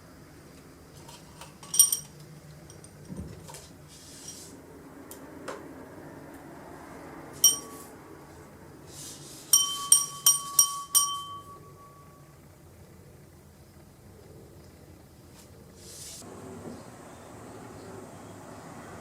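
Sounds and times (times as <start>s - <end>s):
wind chime ringing: 7.4s - 7.9s, 9.5s - 12.2s.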